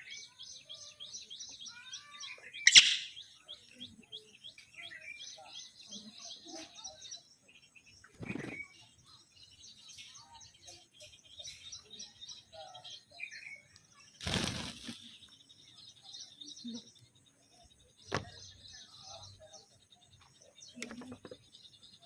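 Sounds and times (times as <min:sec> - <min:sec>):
faint chirping calls: 0:00.0 - 0:22.0
parrots flapping wings: 0:08.2 - 0:08.6, 0:14.2 - 0:15.1.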